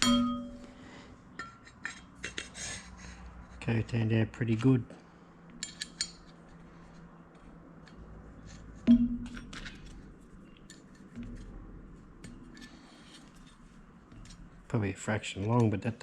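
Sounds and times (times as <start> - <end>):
ringing metal knock: 0.0 - 0.8, 8.8 - 9.6.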